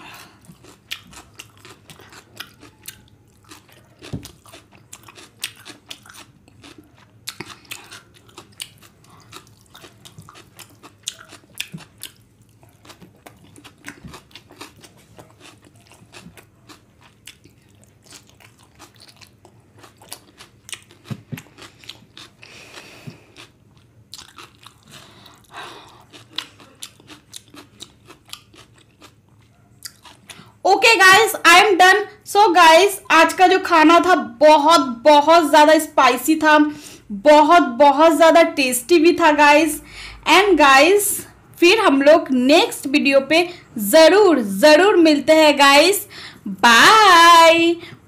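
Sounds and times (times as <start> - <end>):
wet chewing with mouth clicks: 0.0 - 30.6.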